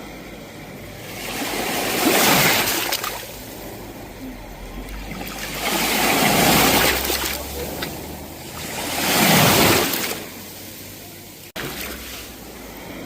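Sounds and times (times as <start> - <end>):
sea waves breaking on shore: 0.8 - 4.2, 4.8 - 13.0.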